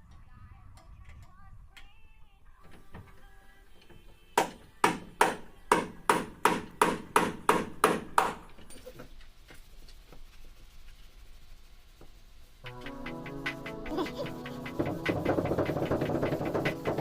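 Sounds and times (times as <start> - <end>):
hammer blows: 12.6 - 17.0.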